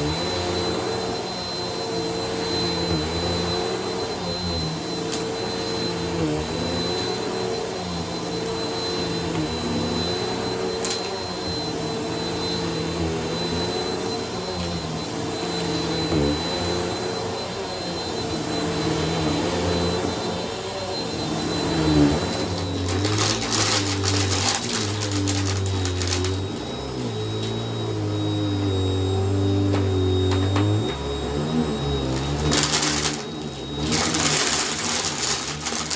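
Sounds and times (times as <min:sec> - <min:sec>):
vacuum cleaner motor drone: 0:00.0 - 0:35.9
debris rattling in vacuum: 0:22.5 - 0:26.7, 0:32.1 - 0:35.9.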